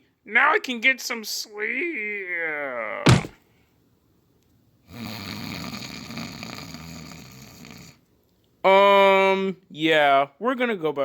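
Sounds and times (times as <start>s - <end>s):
person snoring: 4.9s - 8.0s.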